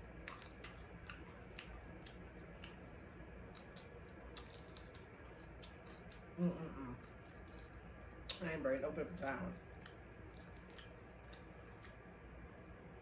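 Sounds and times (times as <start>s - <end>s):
chewing fried fish: 0.0s - 8.6s, 9.2s - 12.4s
wet mouth clicks and smacks: 0.2s - 2.8s, 3.5s - 6.3s, 9.8s - 12.1s.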